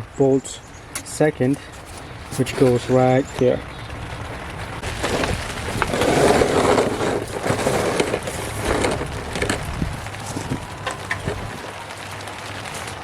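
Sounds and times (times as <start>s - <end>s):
scraping and rustling of hands: 1.4s - 3.2s, 4.2s - 11.6s.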